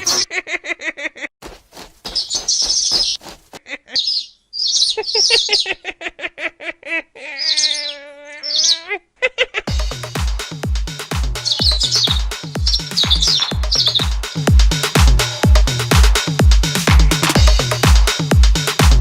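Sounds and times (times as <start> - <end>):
cartoon bird chirps: 2.2 - 5.8, 7.3 - 8.9, 11.4 - 14.2
wavering pitched call: 3.9 - 5.8, 7.3 - 8.9, 11.4 - 14.2.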